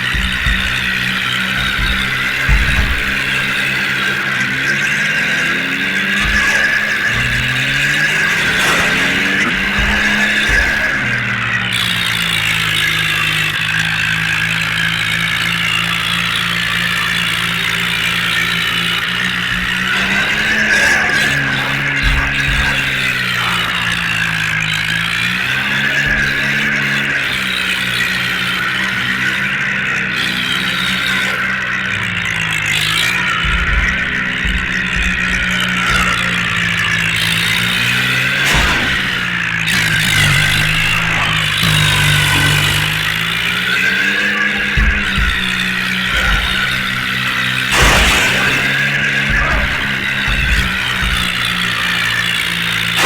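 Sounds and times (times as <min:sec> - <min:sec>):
low thumps: 0:00.0 - 0:14.0, 0:19.4 - 0:26.4, 0:32.3 - 0:43.6, 0:44.6 - 0:52.2
tractor engine running: 0:00.0 - 0:53.0.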